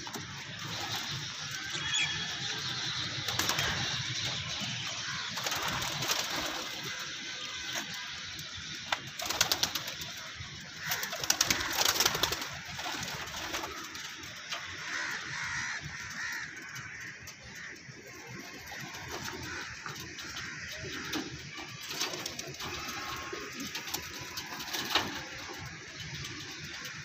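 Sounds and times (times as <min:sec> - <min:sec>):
pigeons cooing: 0:00.0 - 0:27.0.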